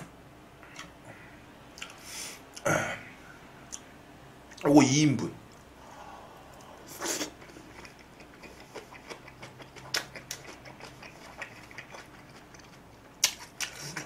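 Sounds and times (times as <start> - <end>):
wet chewing and mouth clicks: 1.8 - 2.6, 6.5 - 14.0.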